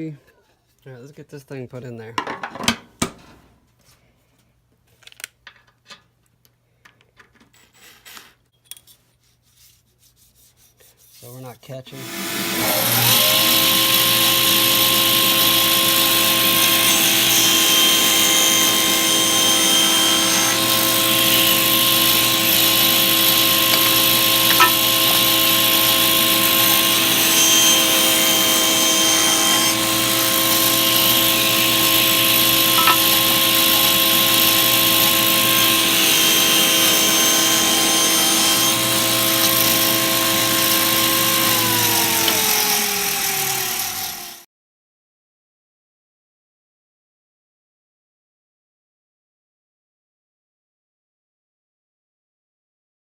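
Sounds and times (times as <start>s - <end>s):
saw motor winding down: 11.9s - 44.4s
table saw running: 11.9s - 44.5s.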